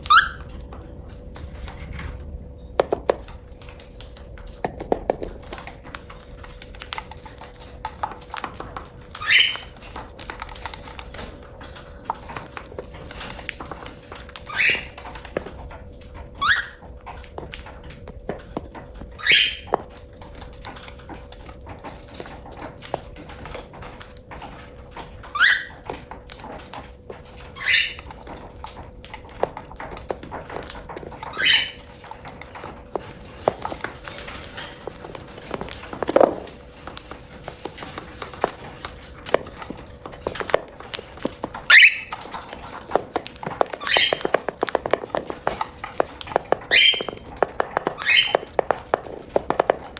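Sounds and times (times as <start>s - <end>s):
cockatiel calling: 0.0s - 0.5s, 9.1s - 9.8s, 14.4s - 15.0s, 19.2s - 19.7s, 25.4s - 25.8s, 27.6s - 28.0s, 31.3s - 31.8s, 41.6s - 42.2s, 43.7s - 44.5s, 46.7s - 48.7s.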